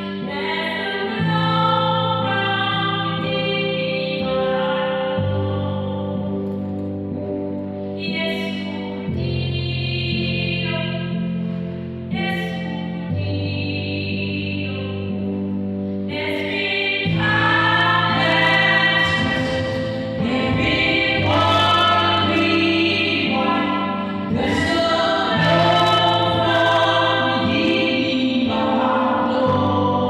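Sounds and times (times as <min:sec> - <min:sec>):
sustained chords and bass: 0:01.1 - 0:30.0
gospel choir singing: 0:16.1 - 0:30.0.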